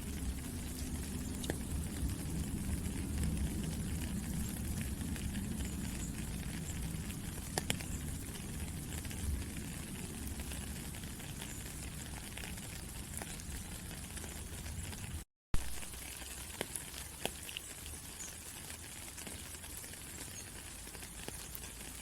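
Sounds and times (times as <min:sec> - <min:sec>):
rain falling: 0:00.0 - 0:22.0
low rumble: 0:00.1 - 0:11.0
sharp drip ticks: 0:00.2 - 0:09.6, 0:15.9 - 0:22.0.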